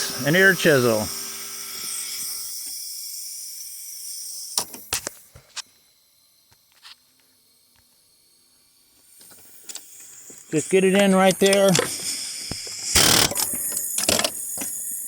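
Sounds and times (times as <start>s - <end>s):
high air hiss: 9.0s - 15.0s.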